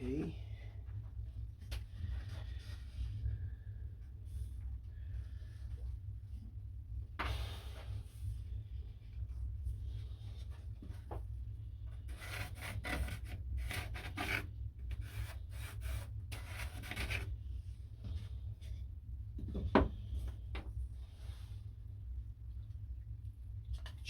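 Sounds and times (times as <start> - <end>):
hand tool scratching wood: 12.1 - 17.3.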